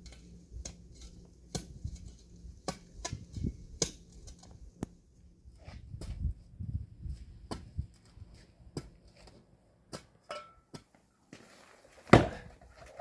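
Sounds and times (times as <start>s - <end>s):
axe chopping wood: 12.0s - 12.6s.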